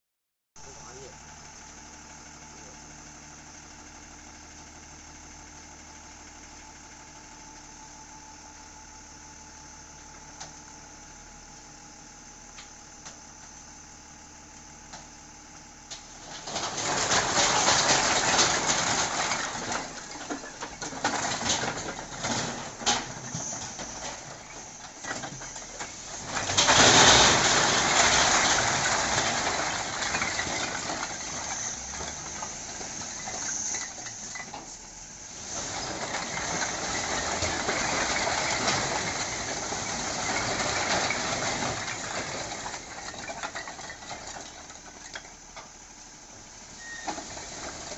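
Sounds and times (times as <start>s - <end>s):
bricks clattering out of truck: 15.9s - 45.8s, 46.7s - 47.9s.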